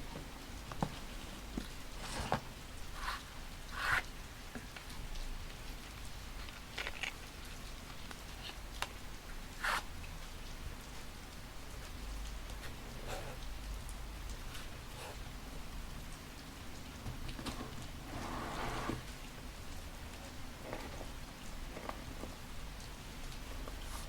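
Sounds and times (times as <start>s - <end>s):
steady rain: 0.0s - 24.0s
paper rustling: 0.7s - 2.6s.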